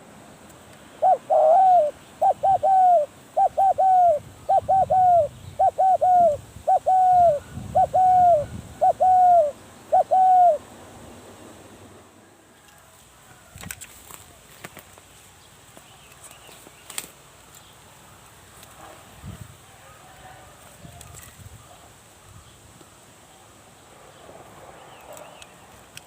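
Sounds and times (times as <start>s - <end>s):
dove cooing: 0.9s - 10.7s.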